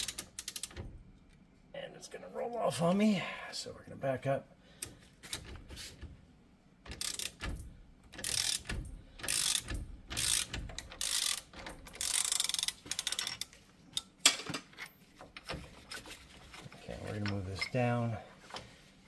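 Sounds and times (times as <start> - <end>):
socket ratchet clicking: 0.0 - 0.8, 6.9 - 14.1.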